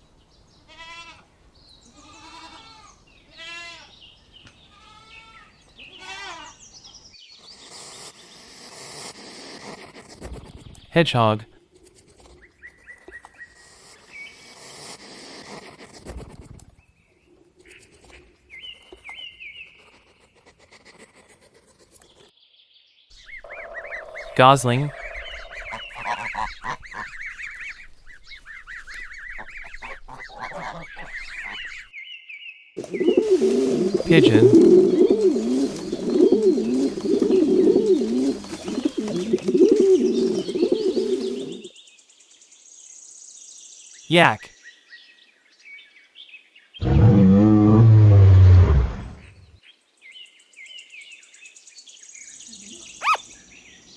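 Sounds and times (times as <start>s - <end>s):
small birds chirping: 23.2s - 31.9s, 32.8s - 41.7s, 52.2s - 53.9s
pigeon cooing: 23.3s - 31.8s, 32.8s - 41.7s
hedgehog rustling and snuffling: 25.5s - 31.8s.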